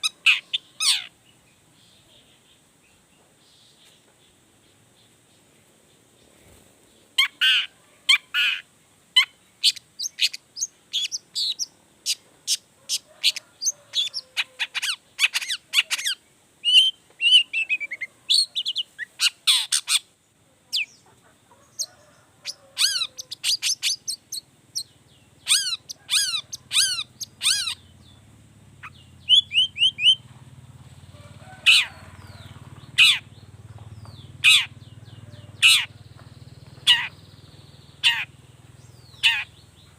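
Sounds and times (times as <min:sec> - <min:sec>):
bird calling harsh chirps: 0:00.0 - 0:01.2, 0:07.2 - 0:20.1, 0:21.8 - 0:28.1, 0:28.8 - 0:30.2, 0:31.6 - 0:33.4, 0:34.4 - 0:36.0, 0:36.8 - 0:39.7
faint low hum: 0:00.0 - 0:39.9.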